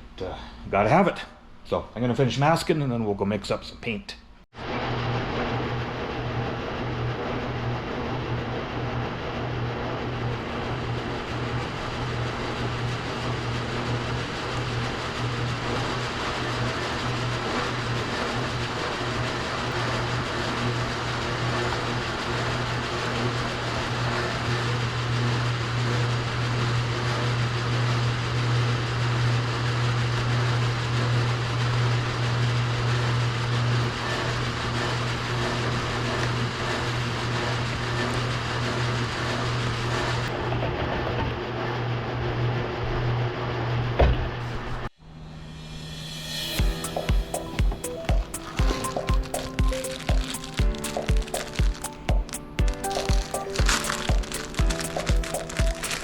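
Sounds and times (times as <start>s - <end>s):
machinery humming and hissing: 44.4s - 56.0s.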